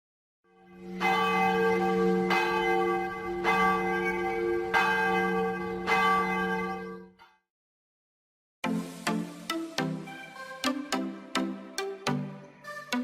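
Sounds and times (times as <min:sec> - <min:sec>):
bell ringing: 0:00.8 - 0:07.0.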